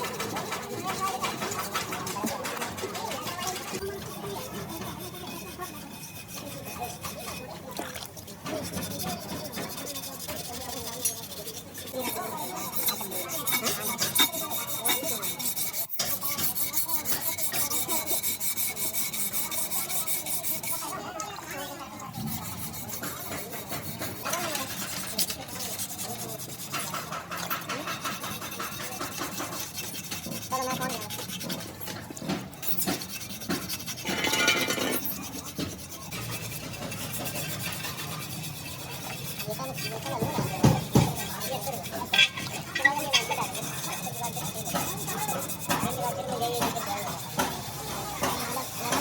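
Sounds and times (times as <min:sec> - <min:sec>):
rasping strokes on metal rim: 0:00.0 - 0:49.0
rubbing and scraping: 0:00.0 - 0:49.0.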